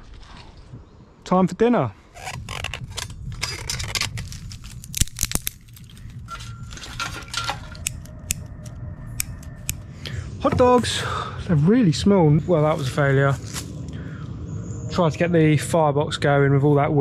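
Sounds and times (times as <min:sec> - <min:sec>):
metal cooking gear clinking: 0:04.9 - 0:08.6.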